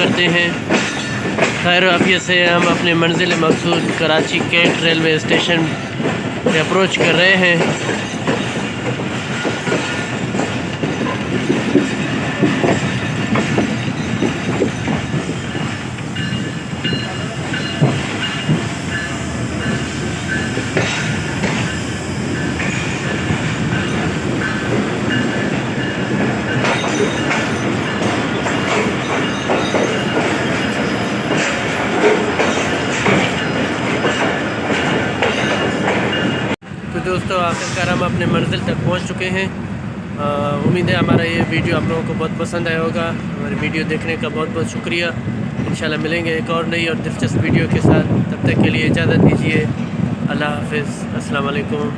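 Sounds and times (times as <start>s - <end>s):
train wheels clacking over rail joints: 0.0s - 36.6s
wheel squeal on rail: 7.6s - 36.5s.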